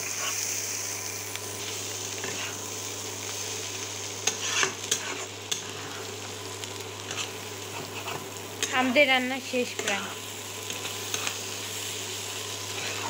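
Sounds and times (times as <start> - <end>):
food sizzling in oil: 0.0 - 13.0
spatula scraping a pan: 2.2 - 2.6, 4.2 - 6.1, 7.1 - 8.7, 12.7 - 13.0.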